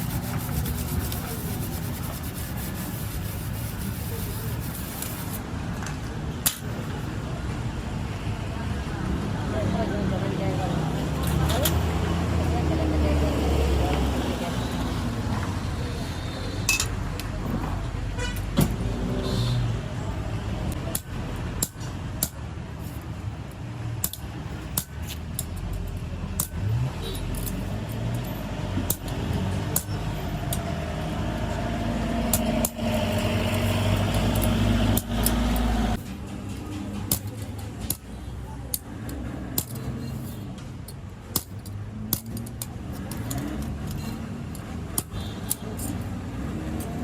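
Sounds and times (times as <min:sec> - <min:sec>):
low rumble of motor vehicles: 0:00.0 - 0:47.0
sharp metallic clicks and clinks: 0:24.0 - 0:29.2, 0:38.7 - 0:46.1.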